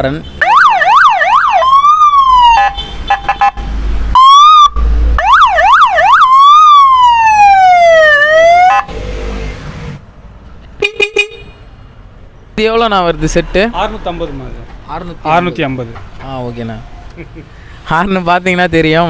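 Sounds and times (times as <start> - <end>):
electronic police siren: 0.4 - 9.0.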